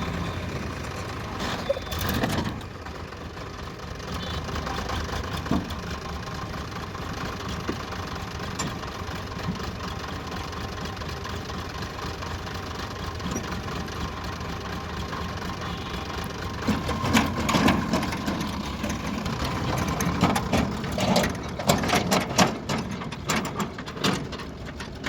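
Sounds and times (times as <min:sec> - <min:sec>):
diesel engine idling with knock: 0:00.0 - 0:25.0
irregular clattering and knocks: 0:16.6 - 0:25.0.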